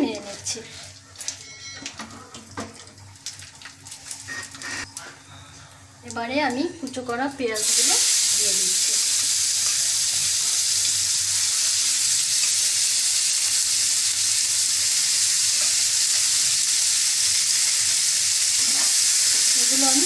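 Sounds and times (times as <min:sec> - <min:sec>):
onions sizzling in hot oil: 0:06.9 - 0:20.0.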